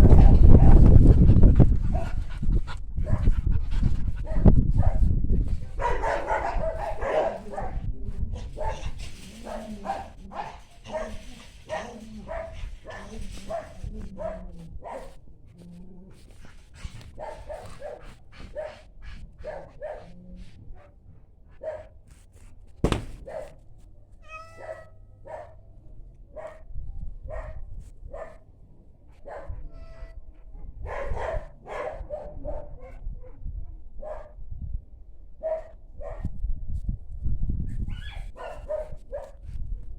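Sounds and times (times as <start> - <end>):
sharp knock: 22.8 - 23.5
cats meowing: 24.2 - 25.1.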